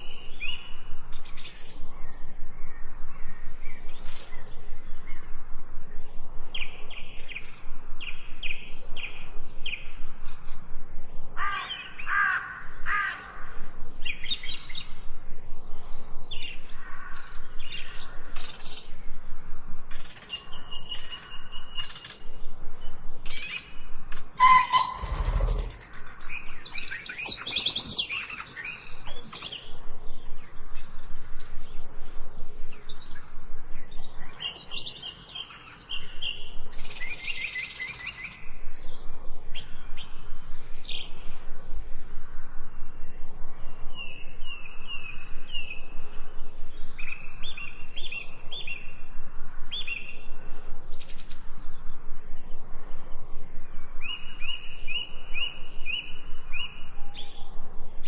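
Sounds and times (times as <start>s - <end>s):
songbirds singing and chirping: 0.0s - 58.0s
bird repeating quick notes: 24.4s - 25.9s.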